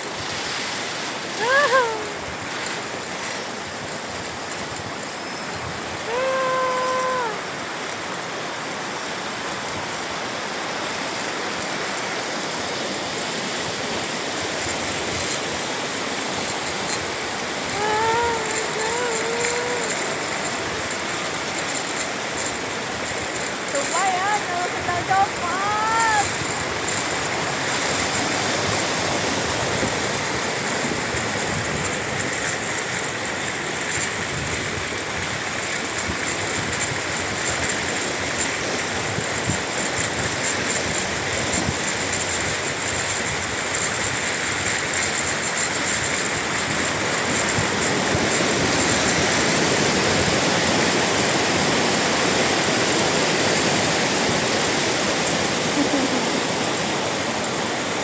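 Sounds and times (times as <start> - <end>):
steady rushing noise: 0.0 - 18.8.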